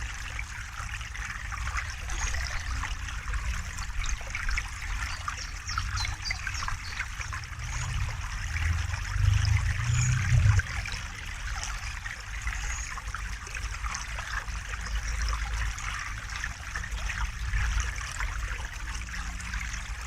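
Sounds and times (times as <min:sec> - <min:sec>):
river flowing over stones: 0:00.0 - 0:20.0
low rumble: 0:06.8 - 0:11.8.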